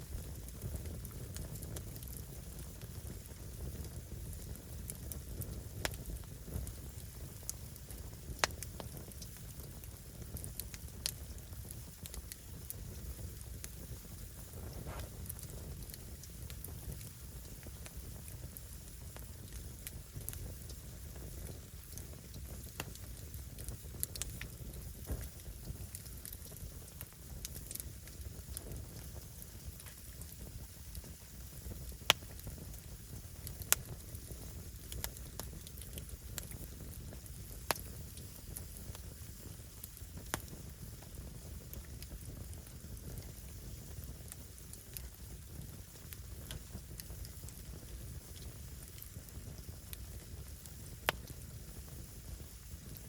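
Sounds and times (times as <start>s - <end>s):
fire burning with low rush: 0.0s - 53.0s
wood crackling pops: 7.4s - 13.8s, 14.4s - 18.2s, 21.4s - 30.4s, 31.9s - 32.8s, 33.4s - 45.2s, 46.4s - 51.4s.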